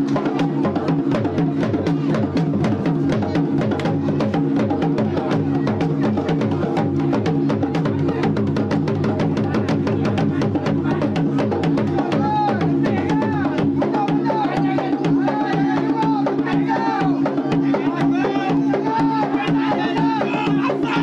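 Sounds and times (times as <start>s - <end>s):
music with fast dense drumming: 0.0s - 21.0s.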